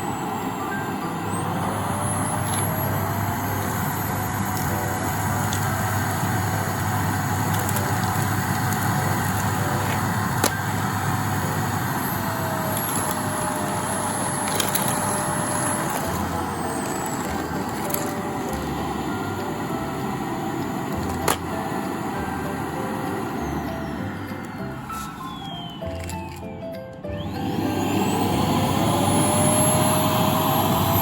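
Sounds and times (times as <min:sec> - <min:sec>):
vacuum cleaner running: 0:00.0 - 0:31.0
sharp clicks: 0:24.9 - 0:27.1.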